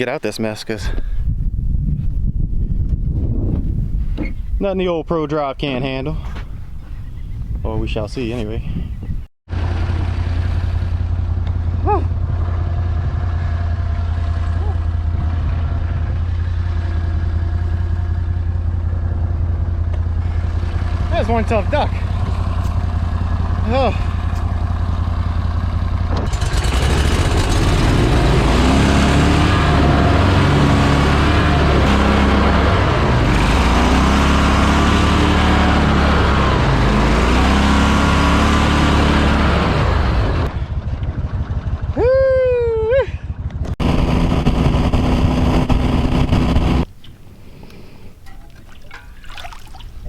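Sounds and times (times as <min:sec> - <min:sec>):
boat motor revving hard: 0:26.1 - 0:40.5, 0:43.8 - 0:46.9
boat motor churning: 0:43.8 - 0:47.0.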